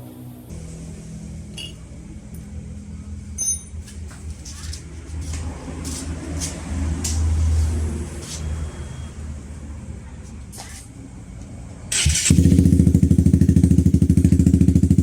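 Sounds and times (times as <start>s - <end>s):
short clink: 1.6s - 1.8s, 3.4s - 3.8s
motorcycle exhaust pulsing: 11.9s - 15.0s.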